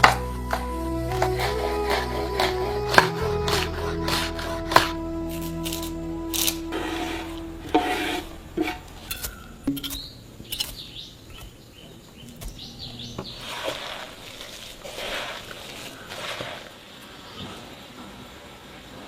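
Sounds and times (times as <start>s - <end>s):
faint bird chirps: 8.8s - 13.8s.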